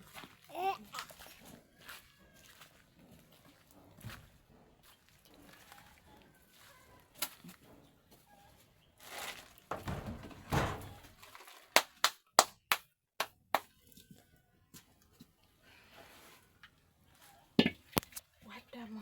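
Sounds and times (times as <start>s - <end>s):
scraping rustle: 9.0s - 11.6s
hard objects knocking together: 9.7s - 11.2s.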